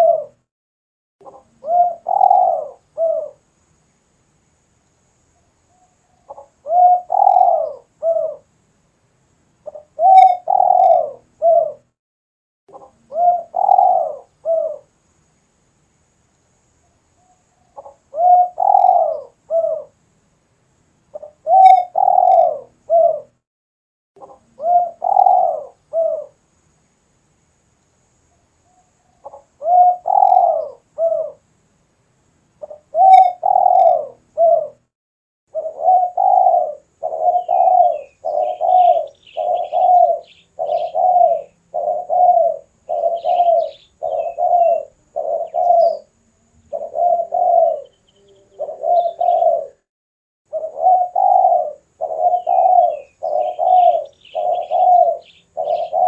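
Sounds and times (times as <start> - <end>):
dove cooing: 0.0 - 0.4, 1.2 - 3.4, 5.7 - 8.5, 9.6 - 11.9, 12.7 - 14.9, 17.2 - 20.0, 21.1 - 23.4, 24.2 - 26.4, 28.7 - 31.4, 32.6 - 34.9, 35.5 - 49.9, 50.5 - 56.0
small bird chirping: 1.2 - 3.4, 5.3 - 8.5, 9.6 - 11.9, 12.7 - 15.0, 16.7 - 20.0, 21.1 - 23.3, 24.2 - 26.4, 28.2 - 31.4, 32.6 - 34.8, 35.5 - 49.9, 50.5 - 56.0.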